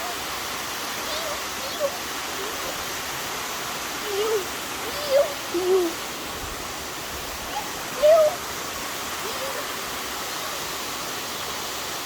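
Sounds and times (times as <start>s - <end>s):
waterfall rushing: 0.0s - 12.0s
wavering calls: 0.9s - 3.1s, 3.8s - 6.3s, 7.3s - 8.6s.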